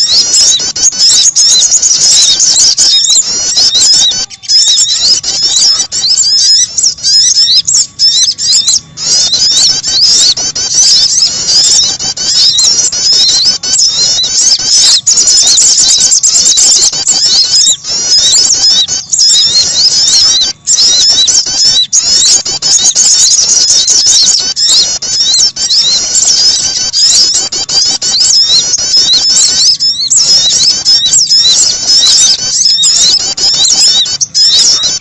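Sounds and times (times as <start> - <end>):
songbird chirps: 0.0 - 35.0.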